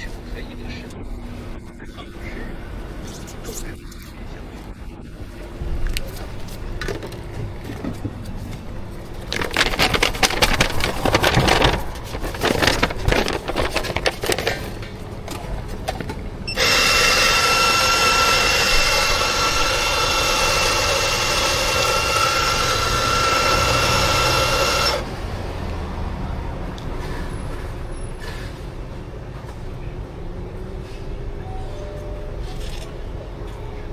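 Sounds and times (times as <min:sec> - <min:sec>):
clattering and rattling: 0:05.9 - 0:16.7
loud hissing whine with whistle: 0:16.5 - 0:25.0.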